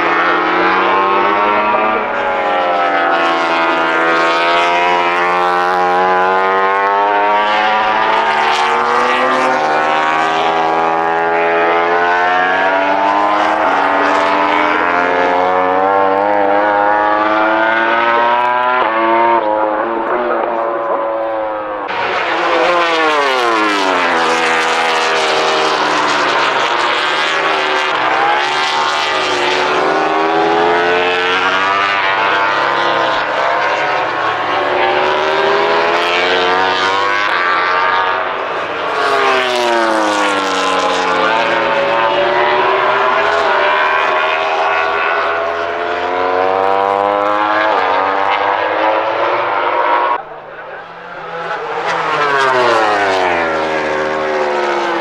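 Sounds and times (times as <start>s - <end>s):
racing motorcycles passing at high revs: 0.0s - 55.0s.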